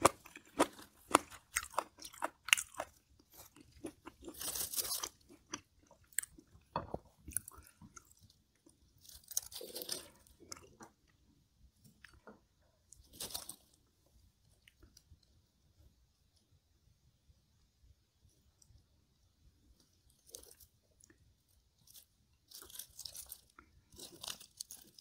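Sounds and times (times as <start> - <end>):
crunchy chewing: 0.0 - 11.2, 11.9 - 13.9, 19.8 - 25.0.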